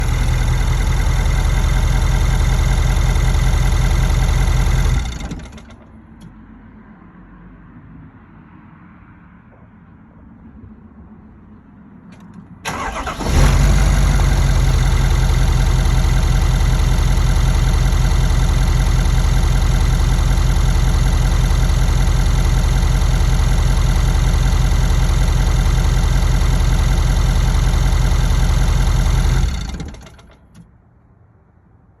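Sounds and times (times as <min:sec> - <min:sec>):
engine running down: 0:00.0 - 0:05.9, 0:12.7 - 0:30.5
diesel engine starting and idling: 0:00.0 - 0:06.3, 0:12.2 - 0:30.6.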